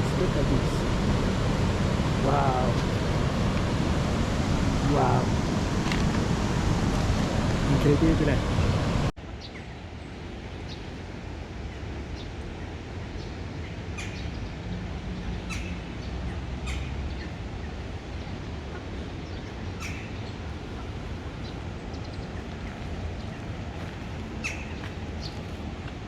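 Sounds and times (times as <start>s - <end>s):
steady rushing noise: 0.0s - 26.0s
high bird calls: 11.8s - 25.7s.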